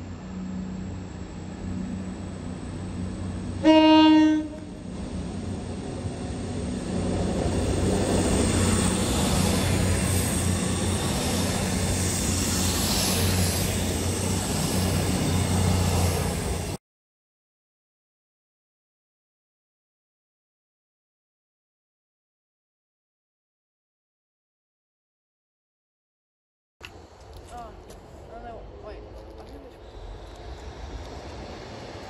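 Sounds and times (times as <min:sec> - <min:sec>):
diesel engines droning: 0:00.0 - 0:16.6
train horn blast: 0:03.6 - 0:04.8
train wheels on rails: 0:04.6 - 0:16.8, 0:26.8 - 0:32.0.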